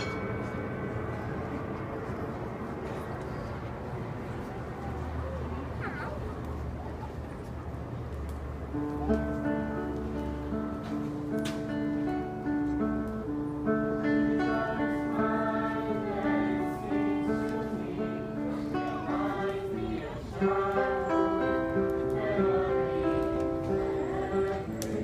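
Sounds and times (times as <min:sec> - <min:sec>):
group of voices singing: 0:14.2 - 0:25.0.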